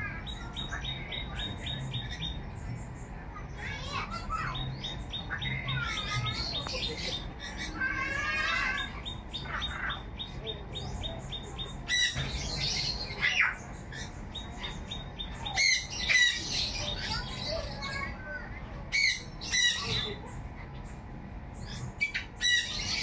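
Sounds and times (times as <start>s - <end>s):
birds chirping and twittering: 0.0s - 23.0s
harsh bird squawks: 3.6s - 10.4s, 11.0s - 18.1s, 18.9s - 20.3s, 21.6s - 23.0s.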